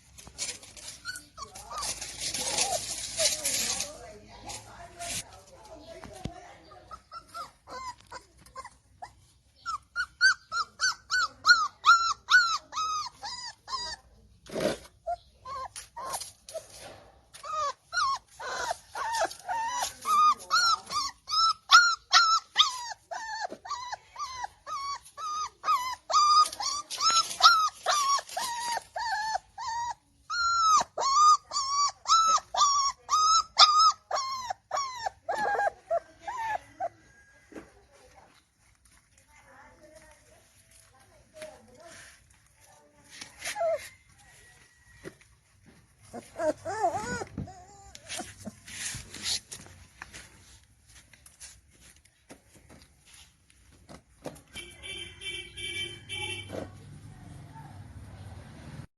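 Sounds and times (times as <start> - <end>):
puppy whimpering: 0.3 - 4.0, 6.6 - 16.8, 17.4 - 37.4, 41.8 - 45.1, 45.9 - 49.8.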